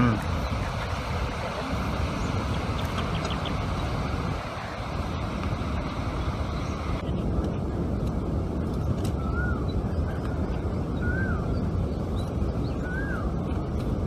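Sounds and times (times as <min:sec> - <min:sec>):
steady rushing background noise: 0:00.0 - 0:14.0
bird whistled call: 0:11.0 - 0:11.5, 0:12.7 - 0:13.3.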